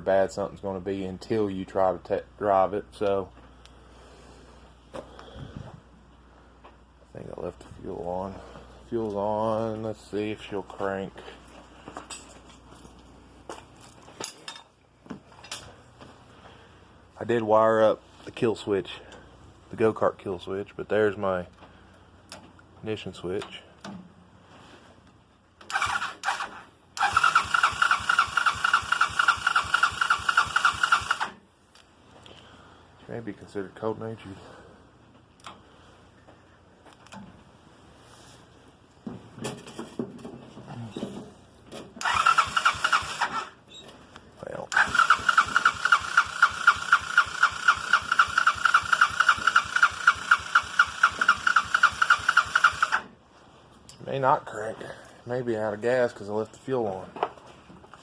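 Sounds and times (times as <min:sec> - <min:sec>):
electric starter cranking engine: 0:25.6 - 0:31.4, 0:42.0 - 0:43.6, 0:44.7 - 0:53.1.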